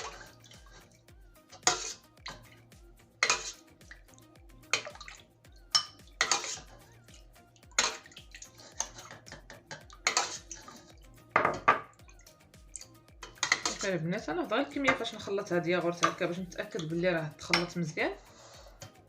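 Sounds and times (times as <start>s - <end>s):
spoon scraping a bowl: 0.0s - 1.0s, 1.6s - 2.6s, 3.2s - 4.1s, 5.7s - 6.9s, 7.7s - 11.9s, 13.2s - 14.0s.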